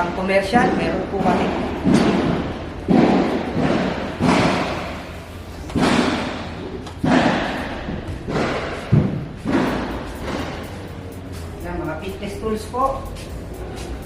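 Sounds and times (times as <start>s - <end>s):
heavy thuds echoing in hall: 0.5s - 11.1s.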